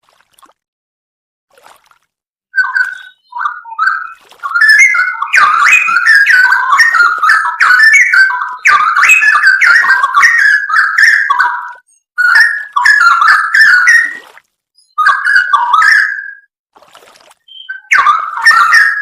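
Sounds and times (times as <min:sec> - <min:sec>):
bird singing whistled notes: 0:02.6 - 0:14.2, 0:14.8 - 0:16.5, 0:17.5 - 0:19.0.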